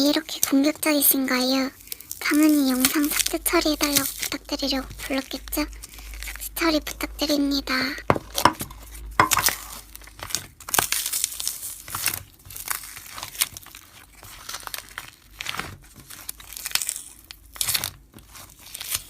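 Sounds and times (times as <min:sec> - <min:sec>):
slime crackling and popping: 0:09.4 - 0:19.0.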